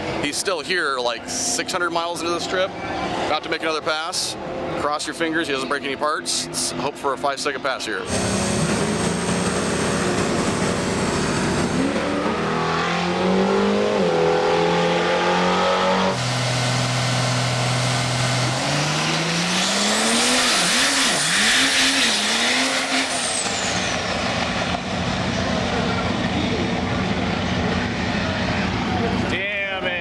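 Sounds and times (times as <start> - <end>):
diesel truck engine revving: 8.0 - 26.4.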